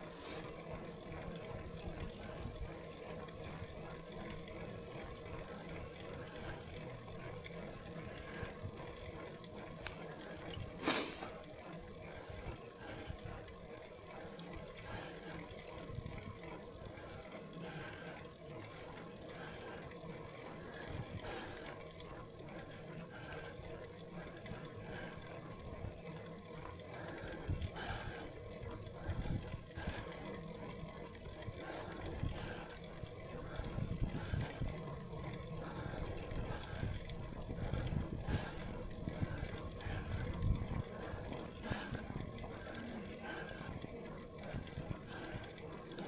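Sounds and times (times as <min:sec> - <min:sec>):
wind rumbling on microphone: 0:28.8 - 0:30.1, 0:33.4 - 0:43.9.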